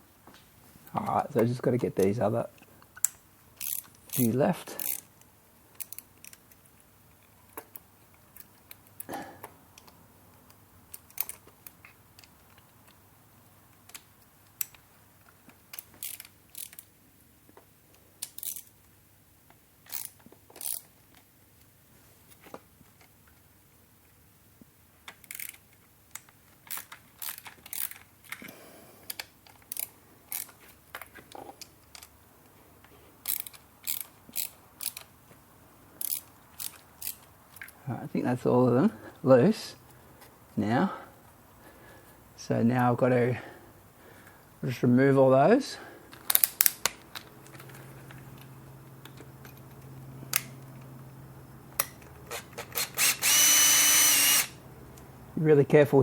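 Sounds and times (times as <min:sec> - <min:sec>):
metallic clicks of hand tools: 0:02.8 - 0:06.7, 0:07.5 - 0:13.0, 0:13.7 - 0:16.9, 0:25.1 - 0:32.2, 0:33.2 - 0:35.1, 0:36.0 - 0:37.8, 0:46.1 - 0:47.7
hand ratchet clicking: 0:03.0 - 0:06.6, 0:10.9 - 0:12.7, 0:15.7 - 0:16.9, 0:18.2 - 0:18.7, 0:19.9 - 0:20.9, 0:25.1 - 0:28.4, 0:29.1 - 0:30.6, 0:33.2 - 0:35.1, 0:36.0 - 0:37.3, 0:51.8 - 0:54.6.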